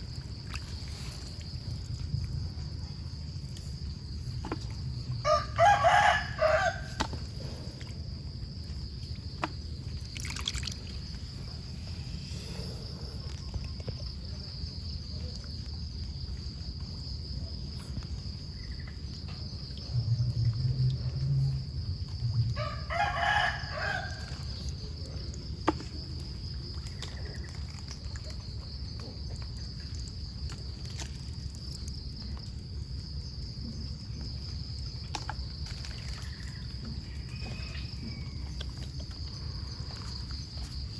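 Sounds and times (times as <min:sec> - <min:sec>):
rooster crowing: 0:05.2 - 0:07.0, 0:22.6 - 0:24.6
low rumble: 0:19.8 - 0:22.6.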